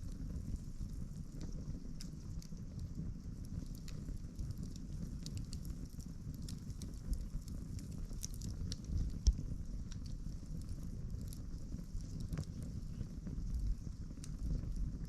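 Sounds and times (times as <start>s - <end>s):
campfire crackling and popping: 0.0s - 15.0s
low fire rumble: 0.0s - 15.0s.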